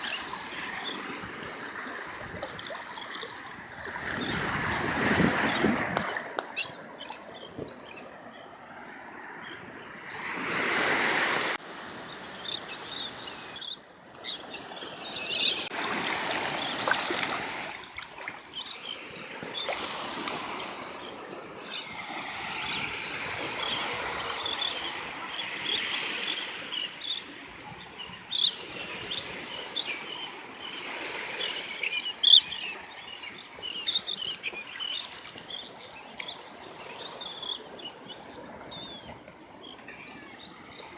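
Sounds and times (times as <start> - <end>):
water splashing and trickling: 0.0 - 9.3, 15.6 - 23.8, 30.6 - 38.8
birds chirping: 0.0 - 10.8, 11.8 - 15.7, 20.9 - 40.9.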